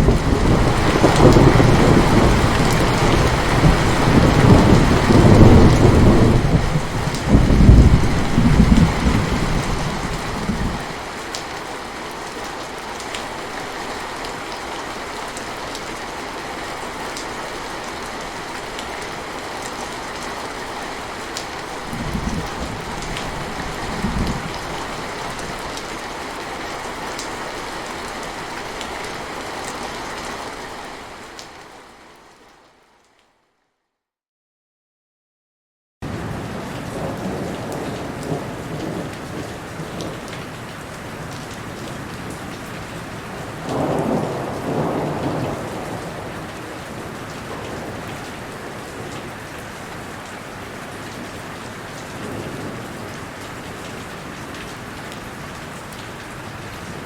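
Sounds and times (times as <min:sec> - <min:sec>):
thunder rumbling: 0:00.0 - 0:11.1, 0:21.6 - 0:25.8, 0:43.6 - 0:48.1
steady rain falling: 0:00.0 - 0:33.4, 0:36.0 - 0:57.0.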